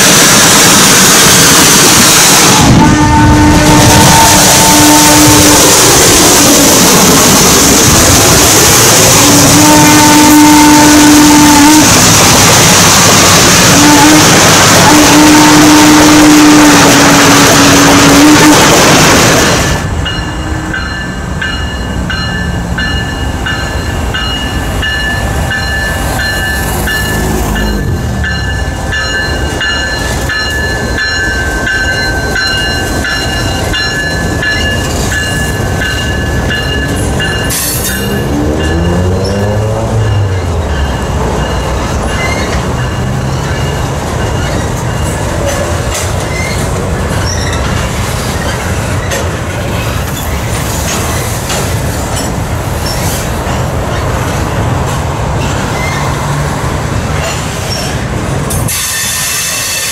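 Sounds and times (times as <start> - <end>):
train wheels rumbling on rails: 0.0 - 59.9
high-pitched wheel squeal: 46.2 - 47.8, 55.4 - 56.3, 58.7 - 59.9.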